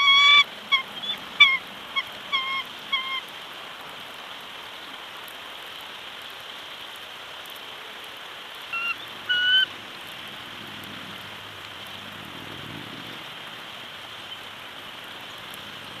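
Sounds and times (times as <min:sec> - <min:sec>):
short bird calls: 0:00.0 - 0:03.2
steady outdoor hiss: 0:00.0 - 0:16.0.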